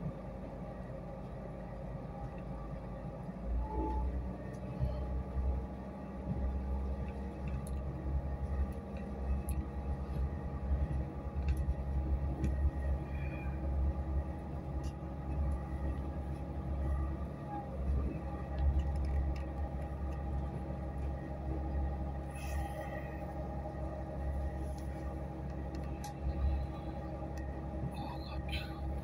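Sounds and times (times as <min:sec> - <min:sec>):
faint steady hum: 0:00.0 - 0:29.0
train carriage rumble on track: 0:00.0 - 0:29.0
small clicks and rattles: 0:18.5 - 0:21.1.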